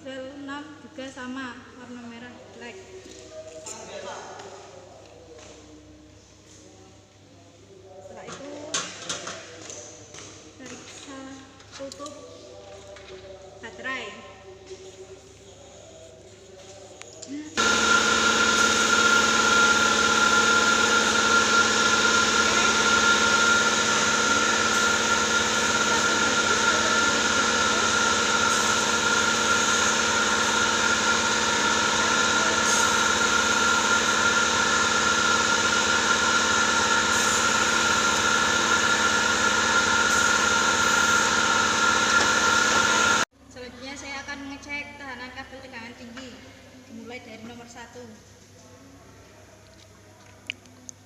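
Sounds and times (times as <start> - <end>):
motor humming and whining: 17.5 - 43.3.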